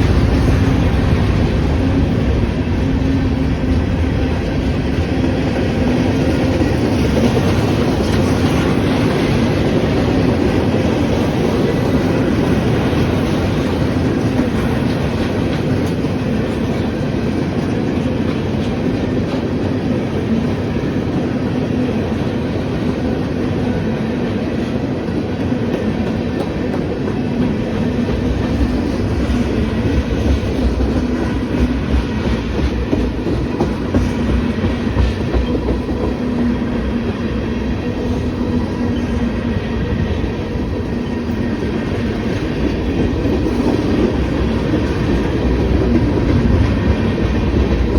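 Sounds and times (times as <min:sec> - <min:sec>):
freight train rolling past: 0:00.0 - 0:47.9
train wheel knocks: 0:25.4 - 0:36.5.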